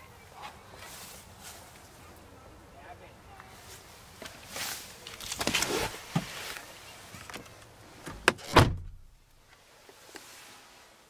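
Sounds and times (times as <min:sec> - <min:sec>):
car door shutting: 0:08.0 - 0:09.1.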